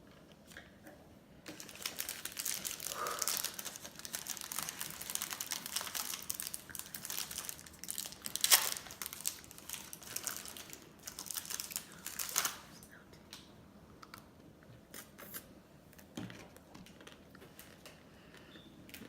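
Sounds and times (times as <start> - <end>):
packaging crinkling: 1.5 - 12.7.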